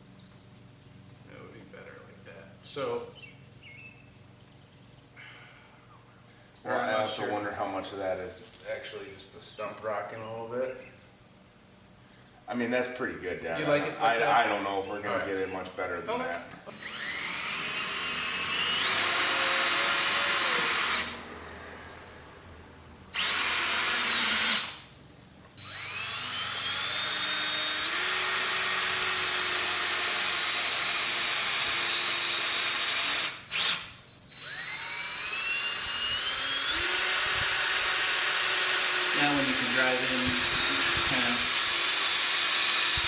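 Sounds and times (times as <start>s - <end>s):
power drill driving screws into wood: 16.7s - 21.3s, 23.1s - 24.9s, 25.6s - 43.0s.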